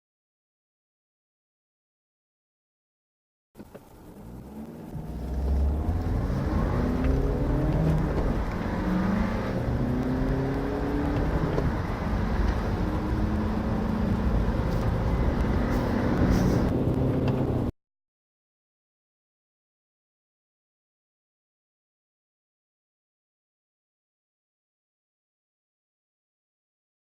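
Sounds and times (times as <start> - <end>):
car engine accelerating hard: 3.7 - 17.7.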